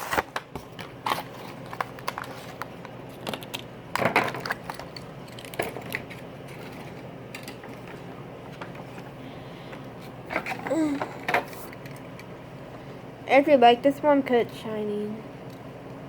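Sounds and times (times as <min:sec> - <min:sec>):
cardboard and plastic packaging tearing: 0:00.0 - 0:02.6.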